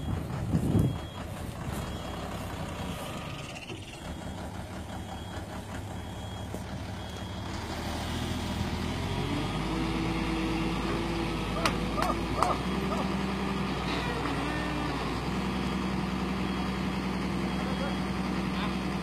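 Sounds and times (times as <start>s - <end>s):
travel alarm beeping: 0.0s - 7.5s
diesel engine running: 0.0s - 19.0s.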